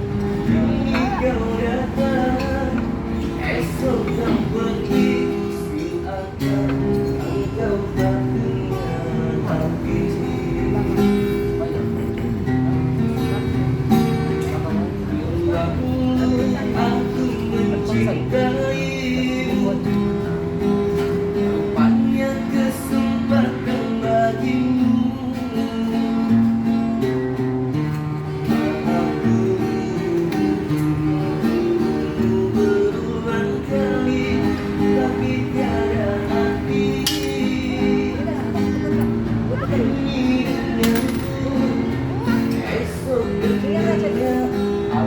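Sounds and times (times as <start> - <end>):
man singing: 0.0 - 27.0, 28.4 - 45.0
acoustic guitar strumming chords: 0.0 - 45.0.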